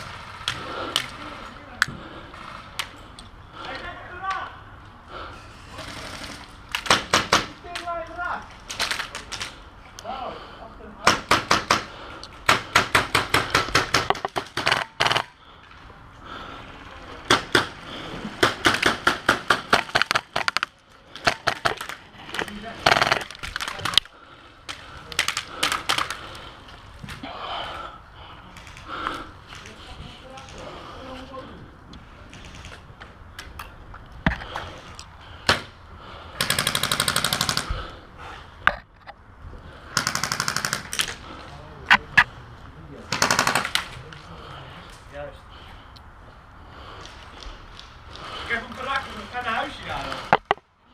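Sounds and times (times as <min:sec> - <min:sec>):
airsoft guns firing: 0:05.8 - 0:07.9, 0:11.0 - 0:15.3, 0:18.4 - 0:22.0, 0:22.8 - 0:24.0, 0:36.4 - 0:37.7, 0:39.9 - 0:41.2, 0:43.1 - 0:43.9
airsoft rifle full-auto burst: 0:36.4 - 0:37.7, 0:40.0 - 0:41.0, 0:43.1 - 0:43.8.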